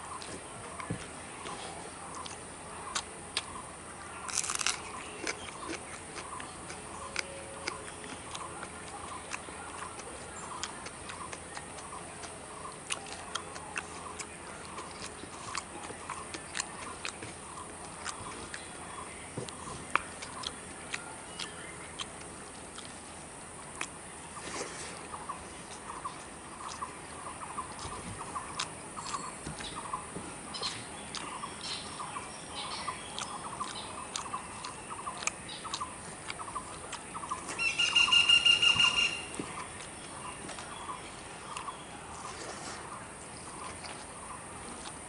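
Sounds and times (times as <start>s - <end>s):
hand mixing and eating rice: 0.0s - 32.3s, 39.3s - 45.0s
birds chirping: 0.0s - 45.0s
loud steady bird call: 24.9s - 42.0s.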